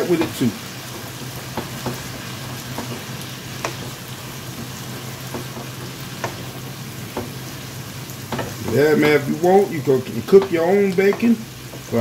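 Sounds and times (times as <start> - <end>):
wooden spatula knocking on pan: 0.0 - 9.4, 10.3 - 12.0
food sizzling in a skillet: 0.0 - 12.0.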